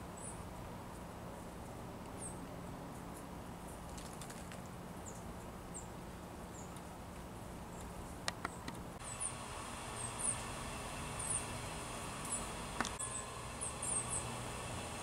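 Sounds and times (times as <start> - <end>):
small birds chirping: 0.0 - 1.0, 2.1 - 3.2, 4.0 - 7.0, 7.6 - 15.0.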